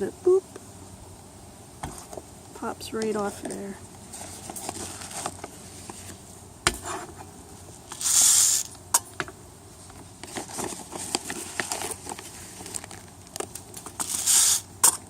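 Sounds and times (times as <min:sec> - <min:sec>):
bird seed pouring: 0:07.9 - 0:08.7, 0:13.9 - 0:14.6.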